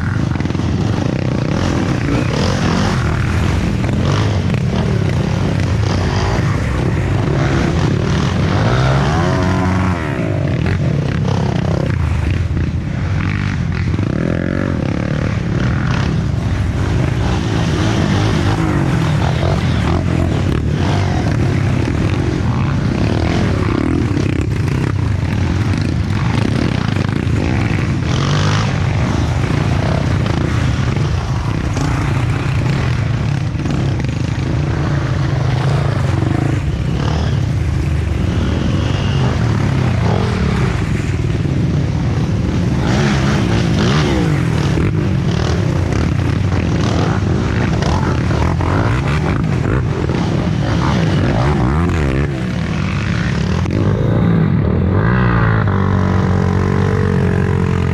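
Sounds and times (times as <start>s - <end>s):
dirt bike engines revving: 0.0s - 57.9s.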